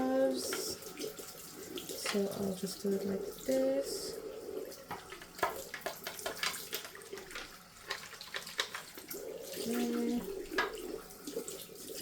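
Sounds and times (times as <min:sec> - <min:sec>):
tap water running: 0:00.0 - 0:12.0
scrubbing and knocking plastic: 0:04.8 - 0:12.0.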